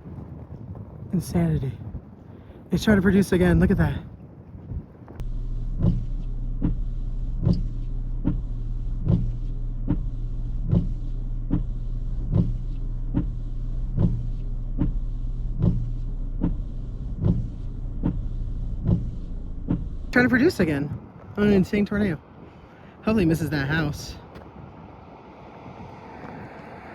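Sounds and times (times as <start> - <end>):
vehicle hum: 2.7 - 26.9
regular ticking: 5.2 - 25.2.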